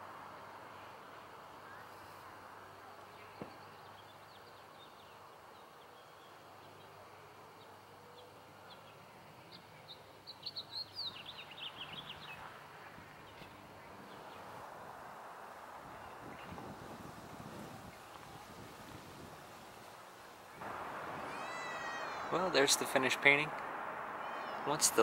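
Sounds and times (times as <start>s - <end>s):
songbird chirping: 0.7s - 16.9s, 19.7s - 25.0s
low hum: 20.6s - 25.0s.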